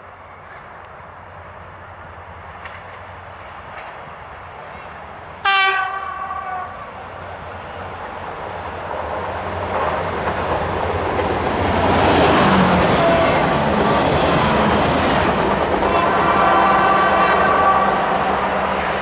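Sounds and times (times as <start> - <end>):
train running noise: 0.0 - 19.0
train horn blast: 5.4 - 7.0, 12.0 - 19.0.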